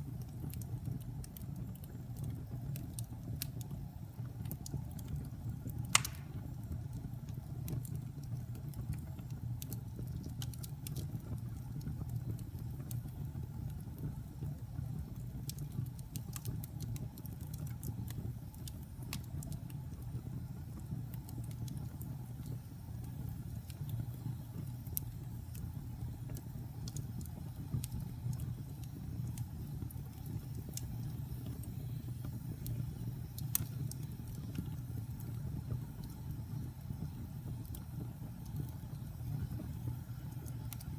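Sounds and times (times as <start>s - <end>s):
fire crackling: 0.0s - 40.9s
fire flames roaring: 0.0s - 40.9s
loud wood pop: 6.0s - 6.4s.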